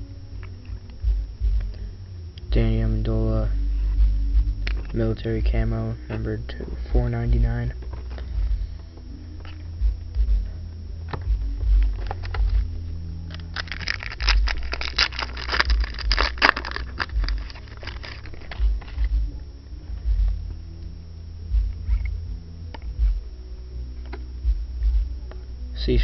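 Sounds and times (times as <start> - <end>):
foil pack crackling rustle: 13.3 - 19.0
handling ticks and thumps: 13.3 - 19.3.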